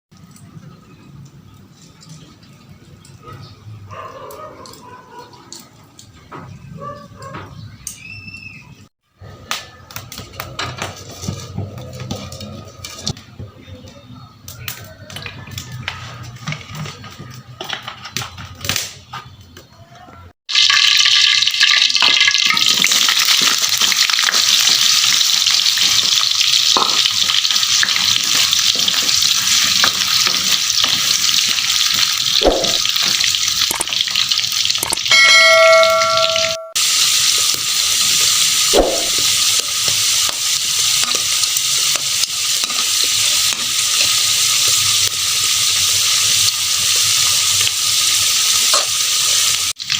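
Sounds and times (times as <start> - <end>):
food sizzling in hot oil: 20.5 - 49.9
brief ringing tone: 35.1 - 36.8.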